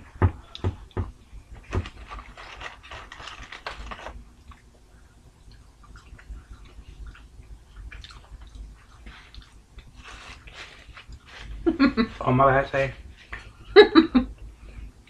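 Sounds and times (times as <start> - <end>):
crackly clicks: 1.7 - 4.7
people chewing: 5.4 - 12.0.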